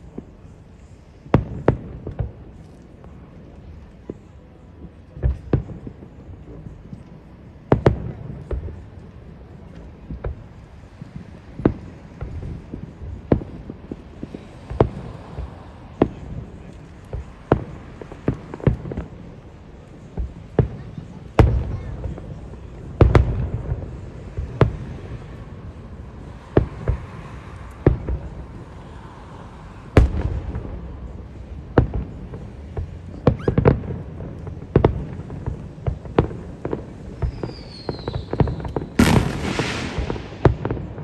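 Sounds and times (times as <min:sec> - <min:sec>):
fireworks bangs with rumbling echo: 0:00.0 - 0:41.0
faint falling whistle: 0:33.3 - 0:33.6, 0:37.3 - 0:39.8
loud hissing firework burst: 0:35.2 - 0:41.0.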